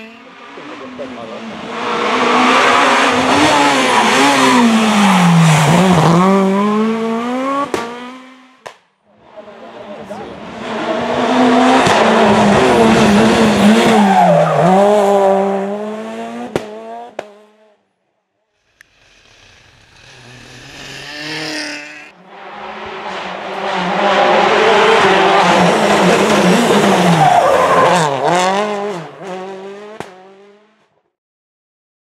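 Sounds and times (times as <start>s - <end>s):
rally car engines revving: 0.0s - 17.8s, 18.8s - 30.9s.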